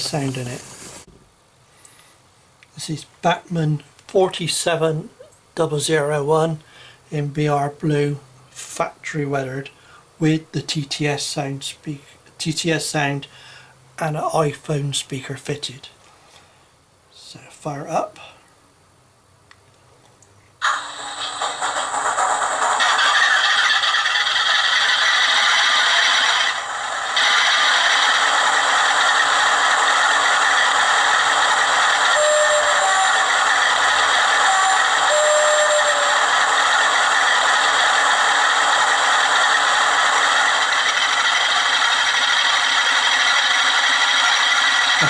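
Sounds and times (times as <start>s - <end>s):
model train diesel engine sound: 0.0s - 1.1s, 1.8s - 16.5s, 17.1s - 18.4s, 20.6s - 45.0s.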